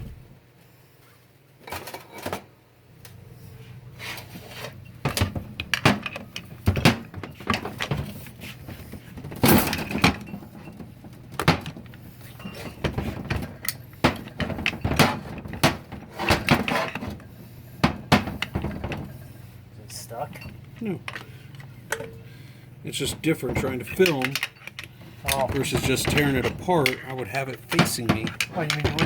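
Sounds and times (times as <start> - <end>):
metal parts knocking and clinking: 5.0 - 19.2, 20.2 - 22.3, 22.9 - 29.0.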